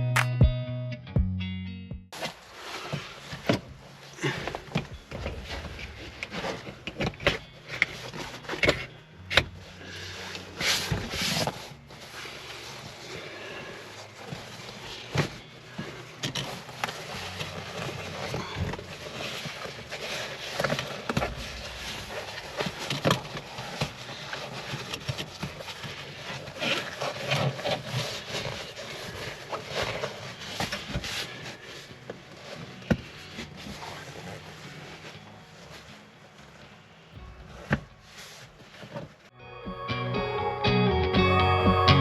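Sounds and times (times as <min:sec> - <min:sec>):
fabric rustling and scraping: 0:02.1 - 0:39.3.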